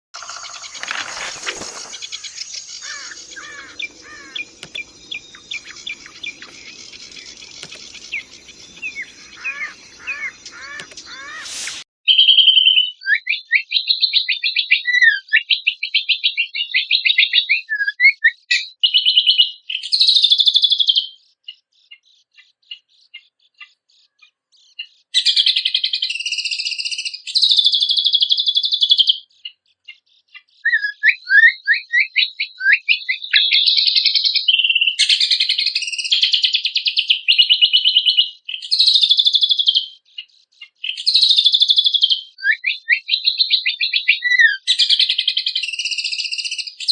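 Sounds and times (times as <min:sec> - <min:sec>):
songbird singing: 0:00.2 - 0:11.8.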